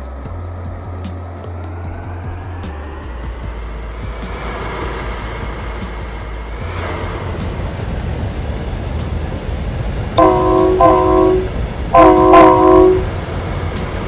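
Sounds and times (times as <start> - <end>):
train rumbling: 0.0 - 14.0
train horn blasts: 10.2 - 14.0.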